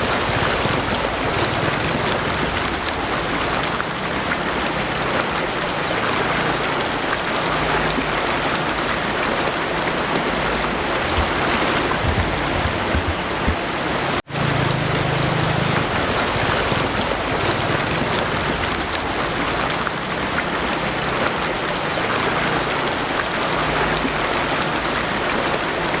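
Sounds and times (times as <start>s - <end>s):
heavy rain falling: 0.0s - 26.0s
rushing mountain stream: 0.0s - 26.0s.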